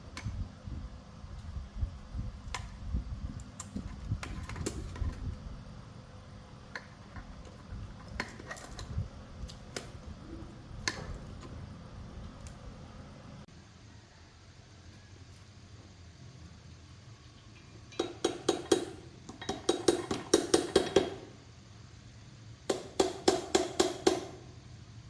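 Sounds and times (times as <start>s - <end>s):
tools clicking and tapping: 17.9s - 21.3s.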